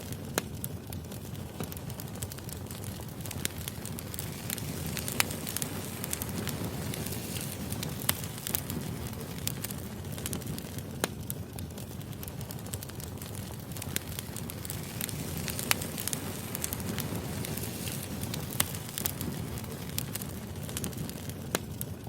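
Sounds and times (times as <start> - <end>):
firewood burning with crackles: 0.0 - 22.0.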